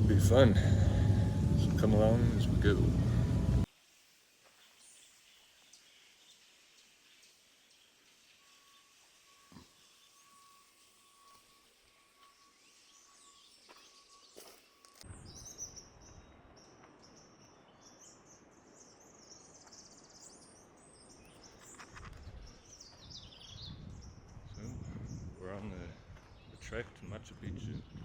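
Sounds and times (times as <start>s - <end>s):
small birds chirping: 0.0s - 3.7s, 12.0s - 28.0s.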